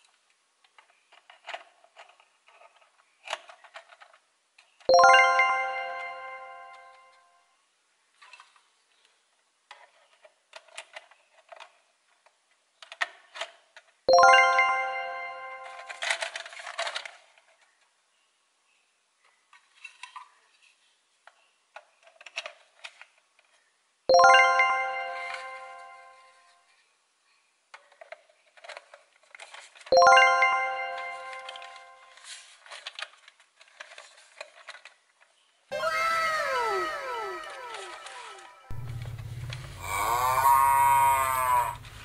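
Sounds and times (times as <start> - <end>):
plastic toy parts clicking: 0.0 - 4.9, 9.7 - 14.0, 15.7 - 17.9, 21.2 - 23.6, 27.7 - 29.9, 31.3 - 38.4.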